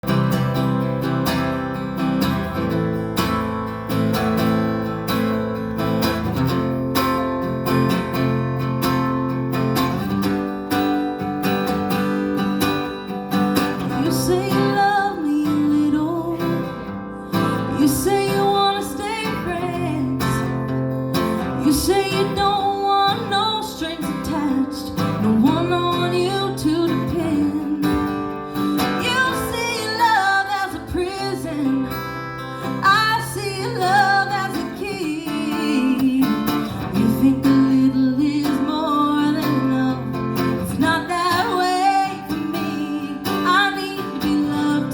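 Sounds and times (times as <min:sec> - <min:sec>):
strummed acoustic guitar: 0:00.0 - 0:44.9
woman singing: 0:13.6 - 0:44.9.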